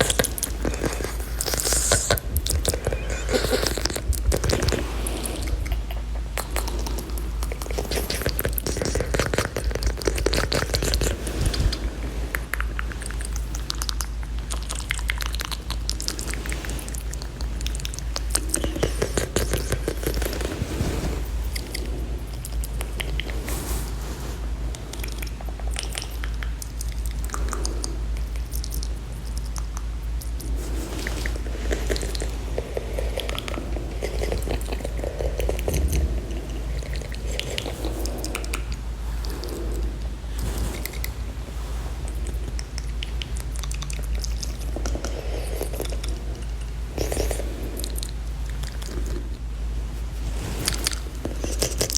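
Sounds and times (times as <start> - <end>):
wet mouth clicking and smacking: 0.0 - 11.8, 12.4 - 20.5, 25.0 - 30.6, 42.8 - 49.3
low hum: 0.0 - 29.3, 30.0 - 51.9.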